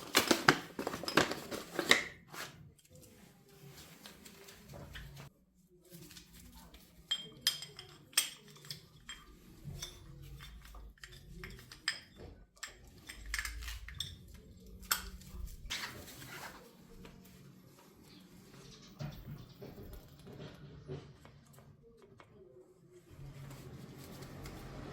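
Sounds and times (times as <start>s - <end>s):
metal tools clinking and knocking: 6.8s - 16.0s.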